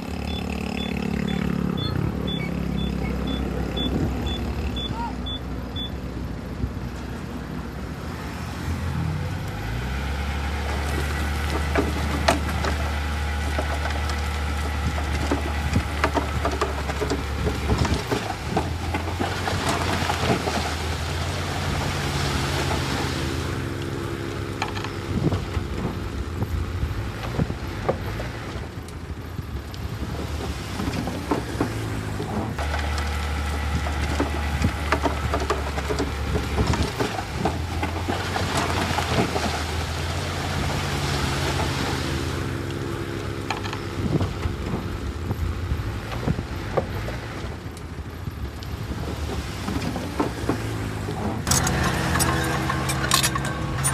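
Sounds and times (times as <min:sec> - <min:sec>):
diesel engine drone: 0:00.0 - 0:53.9
metal clanks and knocks: 0:50.0 - 0:53.9.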